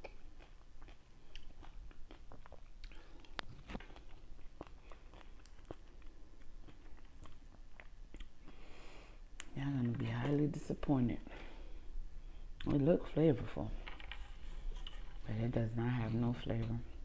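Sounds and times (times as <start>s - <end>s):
person chewing fruit: 0.0s - 10.4s.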